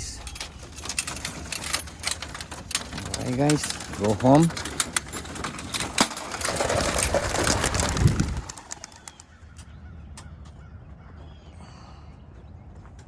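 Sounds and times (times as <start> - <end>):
pigeon wings flapping and clapping: 5.1 - 9.5.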